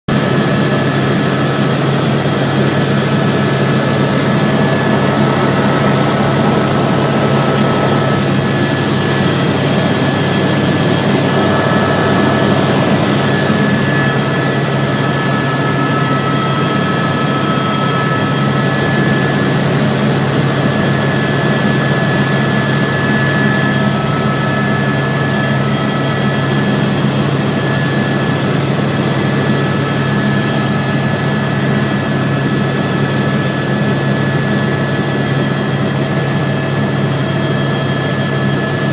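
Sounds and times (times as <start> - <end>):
helicopter turbine and rotors droning: 0.1 - 38.9.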